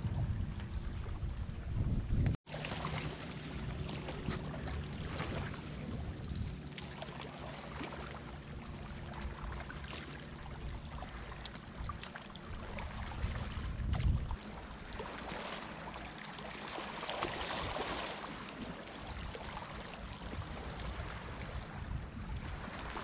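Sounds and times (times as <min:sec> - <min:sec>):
wind rumble on microphone: 0:00.0 - 0:02.4, 0:03.7 - 0:07.0, 0:08.4 - 0:15.5, 0:18.6 - 0:23.0
distant motorboat engine hum: 0:00.0 - 0:23.0.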